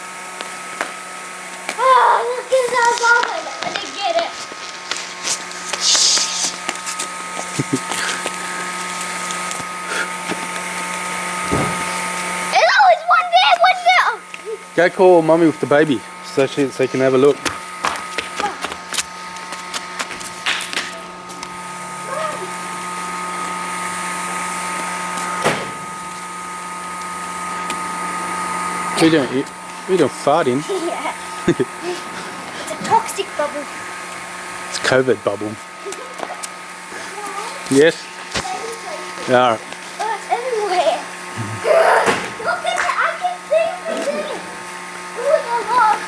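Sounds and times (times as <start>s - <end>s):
fan motor humming and whining: 0.0s - 46.0s.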